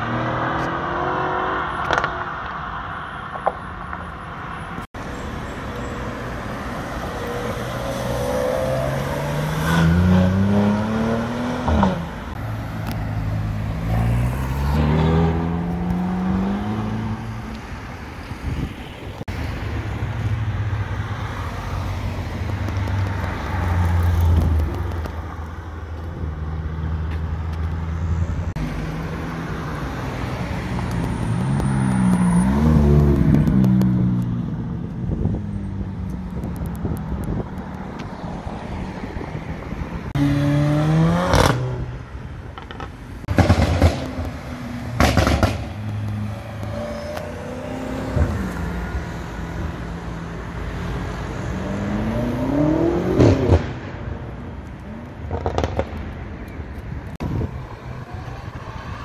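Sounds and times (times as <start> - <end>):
vehicles accelerating past: 0.0 - 59.0
sports car accelerating past: 12.7 - 17.3, 40.2 - 41.9.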